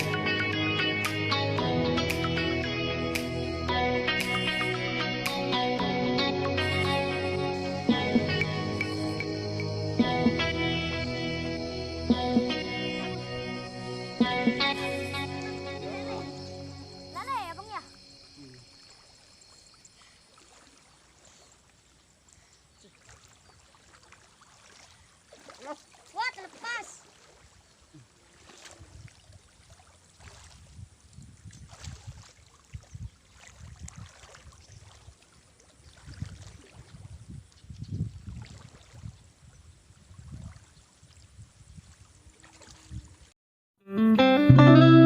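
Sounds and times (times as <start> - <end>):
plucked guitar music: 0.0 - 17.8, 43.8 - 45.0
person calling out: 15.3 - 16.4
muddy water sloshing: 17.1 - 43.3.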